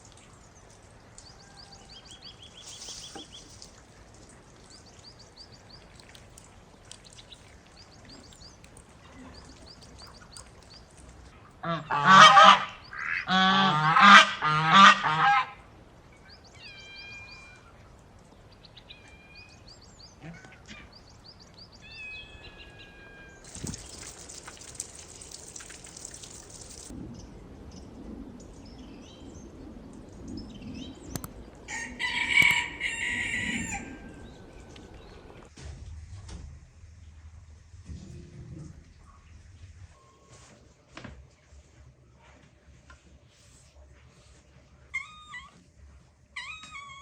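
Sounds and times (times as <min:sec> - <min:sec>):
small birds chirping: 0:00.0 - 0:11.3, 0:18.4 - 0:31.7, 0:32.4 - 0:35.5
geese honking: 0:11.6 - 0:15.6, 0:31.7 - 0:35.5.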